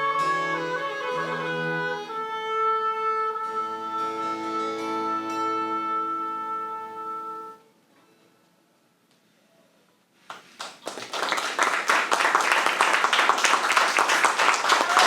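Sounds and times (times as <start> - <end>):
audience applause: 10.3 - 15.0.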